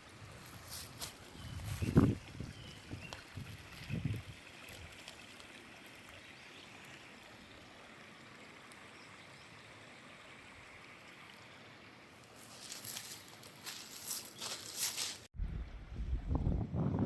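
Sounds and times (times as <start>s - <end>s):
running water rushing: 0.0s - 13.8s.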